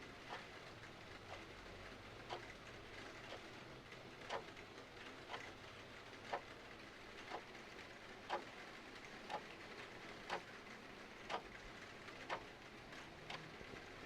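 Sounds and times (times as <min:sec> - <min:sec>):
clock ticking: 0:00.2 - 0:01.5, 0:02.2 - 0:02.6, 0:03.2 - 0:03.5, 0:04.2 - 0:04.5, 0:06.3 - 0:06.5, 0:07.2 - 0:07.5, 0:08.3 - 0:08.6, 0:09.3 - 0:09.6, 0:10.2 - 0:10.5, 0:11.3 - 0:12.5.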